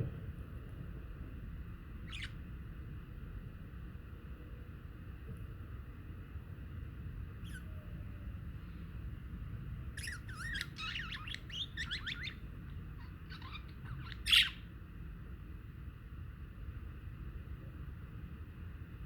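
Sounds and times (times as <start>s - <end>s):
steady low rumble: 0.0s - 19.0s
budgie squawk: 2.1s - 2.4s, 7.4s - 7.8s, 10.0s - 14.6s
budgies chattering: 2.1s - 2.4s, 10.0s - 14.7s.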